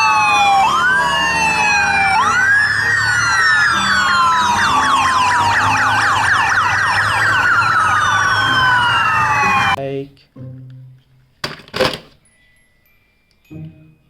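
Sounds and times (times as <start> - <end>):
wailing electronic sirens: 0.0 - 9.8
yelping siren: 0.0 - 9.8.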